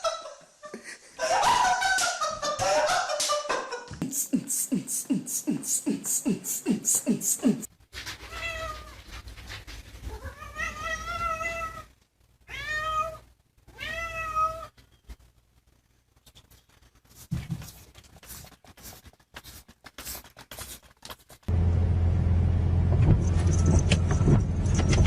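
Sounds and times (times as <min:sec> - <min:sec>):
cat meowing: 0:08.3 - 0:09.0, 0:10.1 - 0:11.9, 0:12.5 - 0:14.8.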